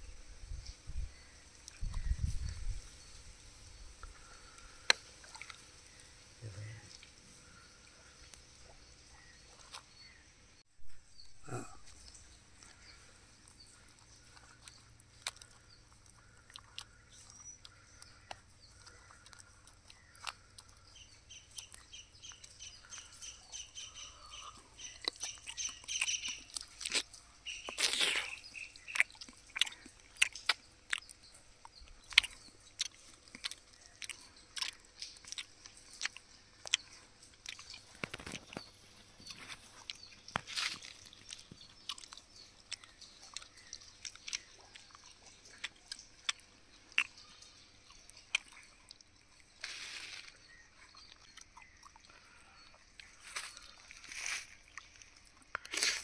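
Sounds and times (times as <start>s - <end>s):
birds chirping faintly: 0.0s - 56.0s
person chewing meat off bone: 11.5s - 56.0s.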